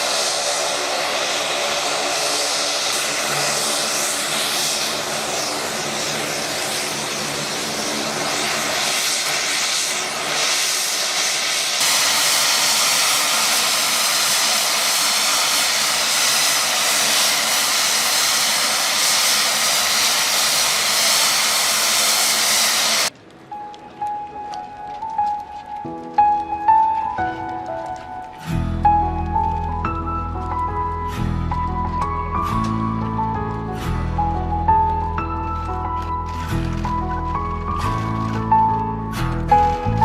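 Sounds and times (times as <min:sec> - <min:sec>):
turboprop engines running: 0:00.0 - 0:23.2
music: 0:23.2 - 0:40.0.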